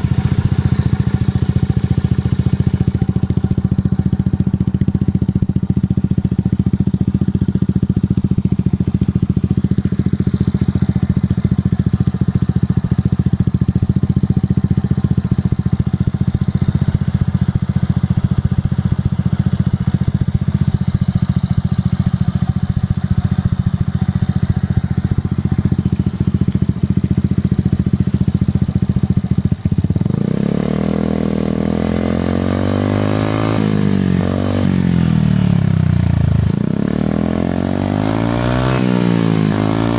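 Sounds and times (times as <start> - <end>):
scooter engine idling and revving: 0.0 - 39.9.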